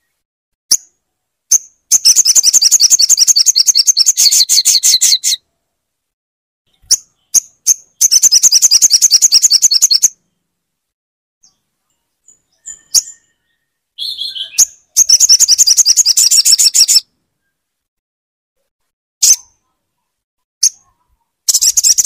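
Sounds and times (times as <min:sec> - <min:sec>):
bird trills: 0:01.5 - 0:05.4, 0:06.7 - 0:10.3, 0:11.4 - 0:17.6, 0:20.6 - 0:22.0.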